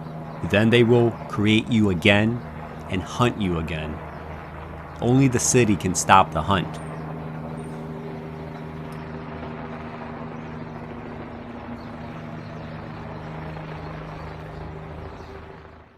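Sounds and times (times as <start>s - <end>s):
helicopter flying overhead: 0.0s - 15.9s.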